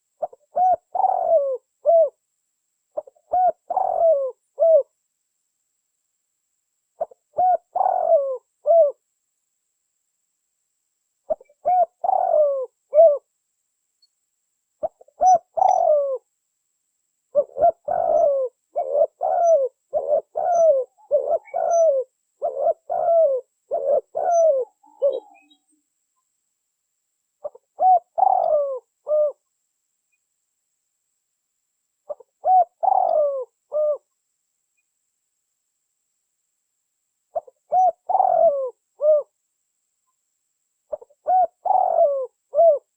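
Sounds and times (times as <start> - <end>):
dove cooing: 0.0 - 2.2, 3.0 - 5.0, 7.0 - 9.0, 11.3 - 13.3, 14.8 - 16.3, 17.3 - 25.7, 27.4 - 29.4, 32.1 - 34.1, 37.3 - 39.4, 40.9 - 42.9.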